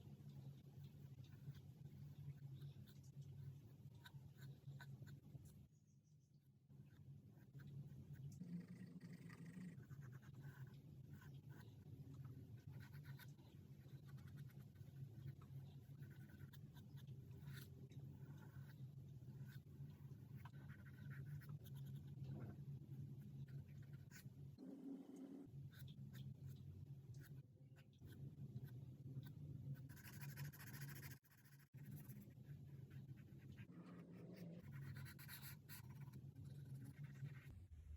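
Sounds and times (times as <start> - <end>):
faint low hum: 0.0 - 37.9
charcoal scratching on paper: 6.8 - 22.6, 27.2 - 37.6
low hum: 36.0 - 37.9.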